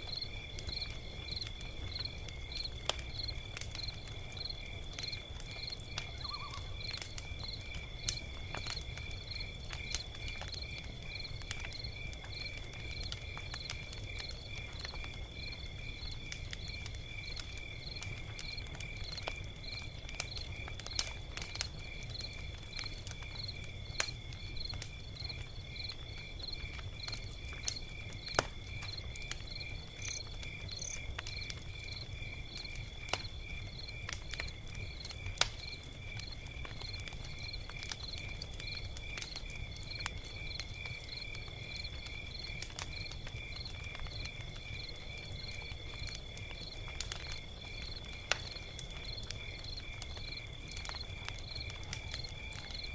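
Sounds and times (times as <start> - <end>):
log fire crackling: 0.0 - 52.9
insect trilling and chirping: 4.4 - 7.0, 29.5 - 31.1.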